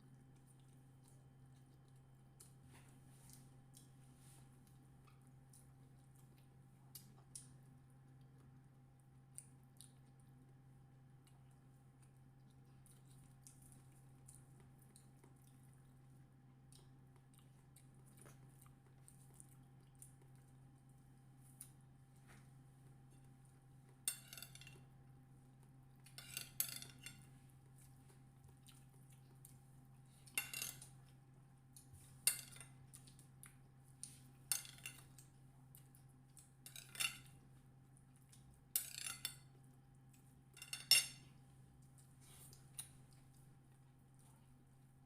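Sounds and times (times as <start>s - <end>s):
cutlery clinking on a plate: 24.1s - 24.8s, 26.1s - 27.3s, 30.3s - 30.9s, 32.3s - 32.7s, 34.5s - 35.1s, 36.7s - 37.3s, 38.8s - 39.5s, 40.6s - 41.3s.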